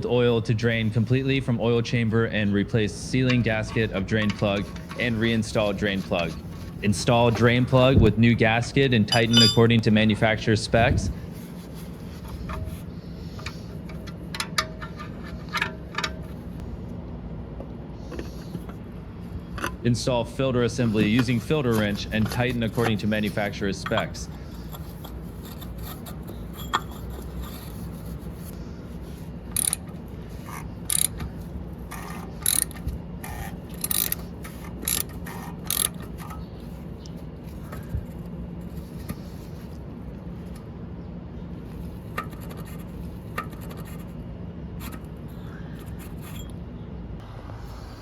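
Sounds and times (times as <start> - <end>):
steady low hum: 0.0 - 48.0
ratchet wrench clicking: 29.5 - 29.8, 30.9 - 31.2, 32.0 - 36.0.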